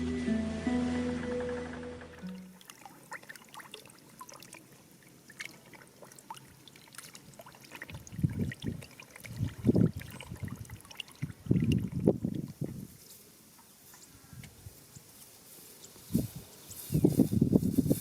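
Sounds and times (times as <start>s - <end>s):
water dripping and trickling: 2.2s - 12.7s.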